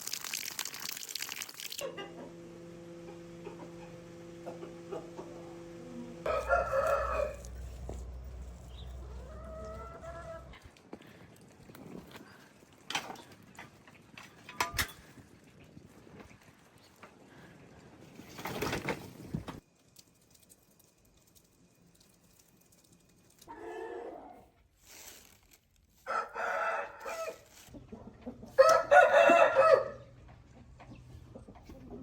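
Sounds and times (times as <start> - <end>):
rooster crowing: 6.2 - 8.2, 9.0 - 10.5, 26.1 - 27.5, 28.6 - 30.1.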